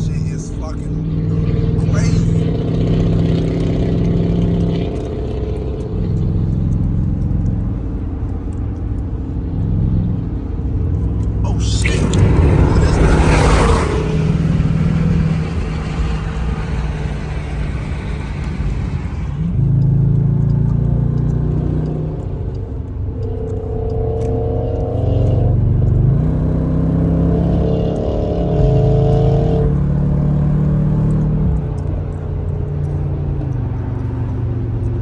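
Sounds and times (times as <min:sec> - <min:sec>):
car engine and exhaust droning: 0:00.0 - 0:35.0
loud rush of noise: 0:11.4 - 0:19.6.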